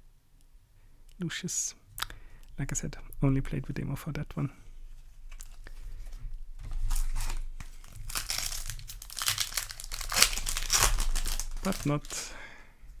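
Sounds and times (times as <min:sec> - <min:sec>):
plastic packaging crinkling: 0:05.3 - 0:12.4.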